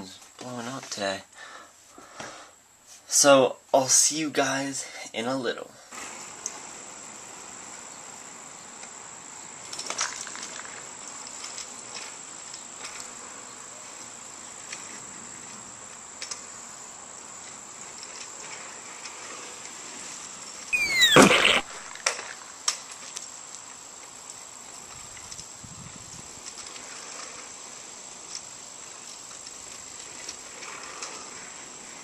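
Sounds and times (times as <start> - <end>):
insects chirring: 6.2 - 32.0
loud brief noise: 20.8 - 22.0.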